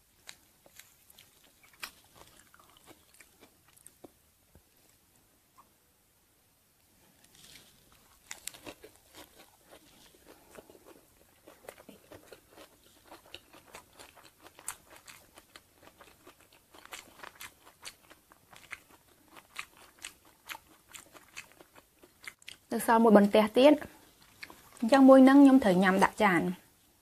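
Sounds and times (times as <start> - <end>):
person chewing crunchy food: 0.0 - 4.2, 7.3 - 22.7, 24.1 - 24.9.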